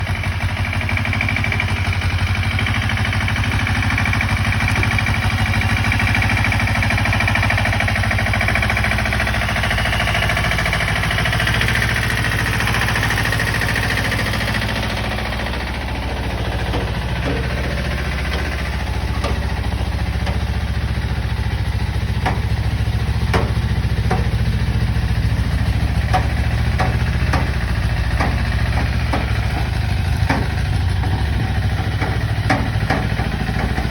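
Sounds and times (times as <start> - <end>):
diesel engine running: 0.0 - 33.9
sharp metal clanks and knocks: 9.6 - 33.9.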